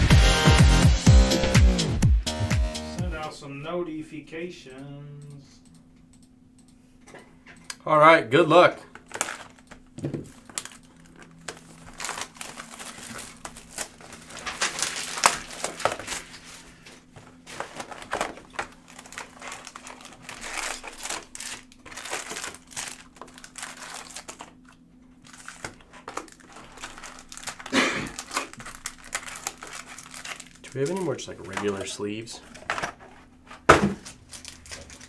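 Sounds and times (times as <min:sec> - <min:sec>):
wrappers tearing and crinkling: 0:08.9 - 0:35.0.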